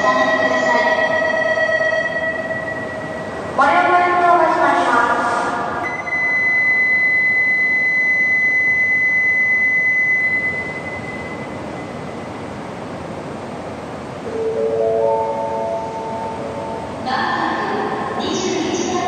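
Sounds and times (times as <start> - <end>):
train roaring through station: 0.0 - 19.0
high electronic tone: 5.8 - 12.4, 14.2 - 17.0
station chime melody: 14.3 - 16.9.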